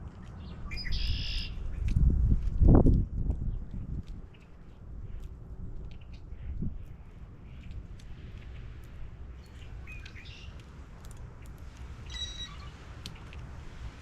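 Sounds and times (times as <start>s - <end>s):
wild birds calling: 9.4s - 10.7s, 11.4s - 13.4s.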